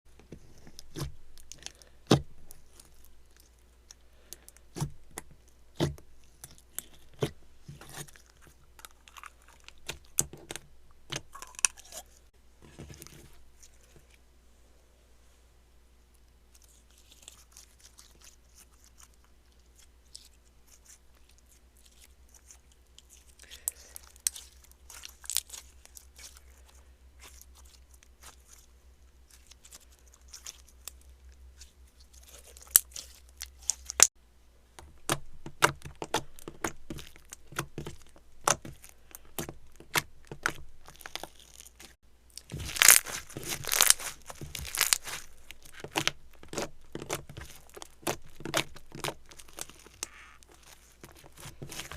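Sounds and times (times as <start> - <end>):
slime crackling and popping: 29.3 - 34.2, 35.0 - 51.9.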